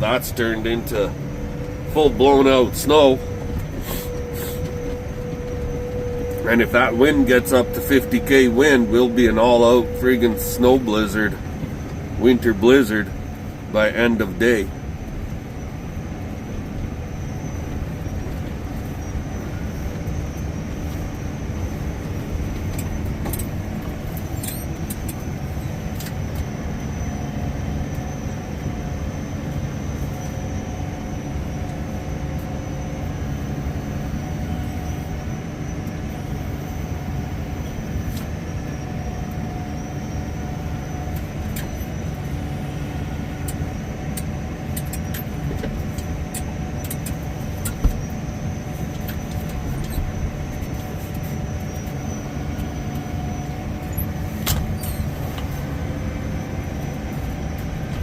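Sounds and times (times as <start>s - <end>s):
tractor engine humming: 0.0s - 58.0s.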